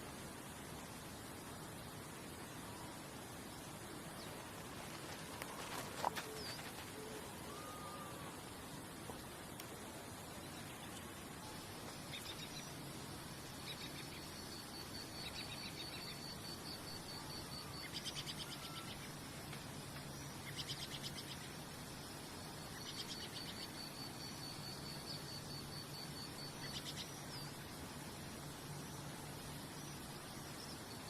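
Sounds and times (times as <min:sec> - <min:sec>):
steady hiss: 0:00.0 - 0:31.0
high-pitched wildlife trills: 0:05.3 - 0:08.7.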